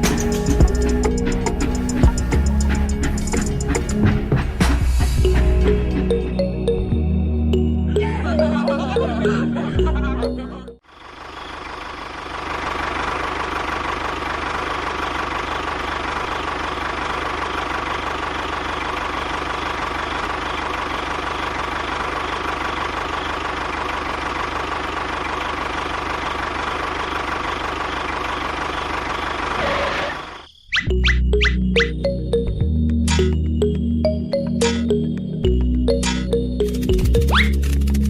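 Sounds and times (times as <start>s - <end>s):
small engine running: 10.9s - 30.4s.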